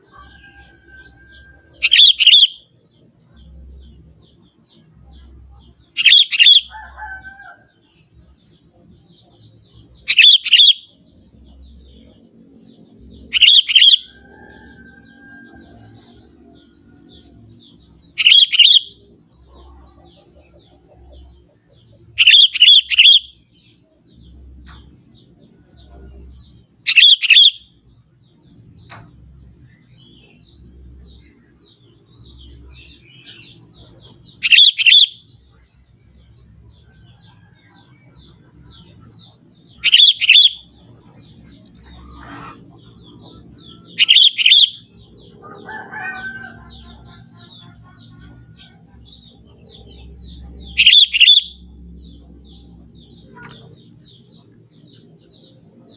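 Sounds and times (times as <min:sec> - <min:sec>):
bulbul calling: 0:01.8 - 0:02.7, 0:05.9 - 0:06.9, 0:10.0 - 0:11.0, 0:13.2 - 0:14.2, 0:18.2 - 0:19.0, 0:22.2 - 0:23.4, 0:26.9 - 0:27.6, 0:34.4 - 0:35.2, 0:39.8 - 0:40.8, 0:41.6 - 0:48.4, 0:50.4 - 0:51.7.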